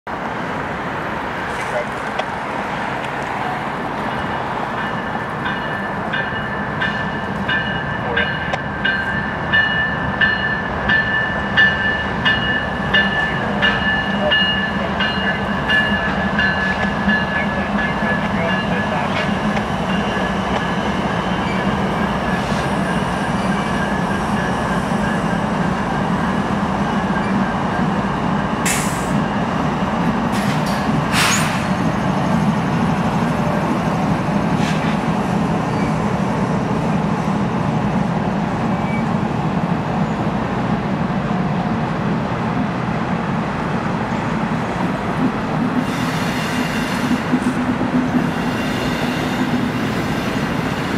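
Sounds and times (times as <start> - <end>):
diesel locomotives rumbling: 0.1 - 50.9
locomotive bell ringing: 4.1 - 25.5.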